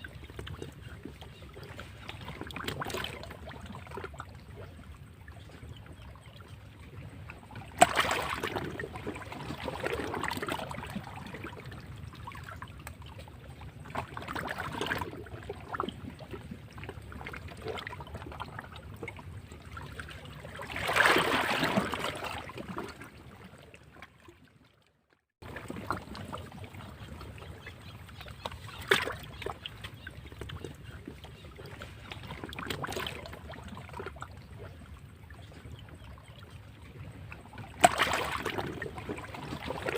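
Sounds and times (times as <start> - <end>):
sea waves breaking against rocks: 7.7 - 11.6, 20.2 - 23.2, 37.6 - 39.9.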